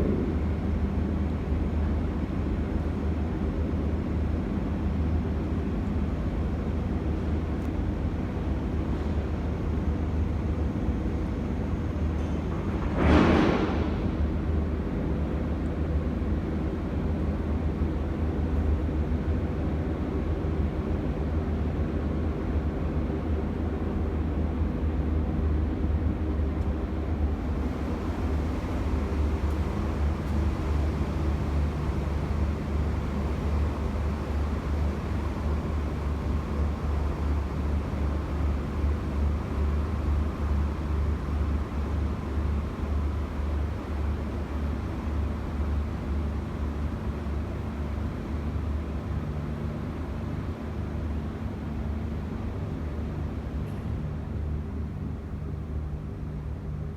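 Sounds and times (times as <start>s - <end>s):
boat engine droning: 27.4s - 42.0s.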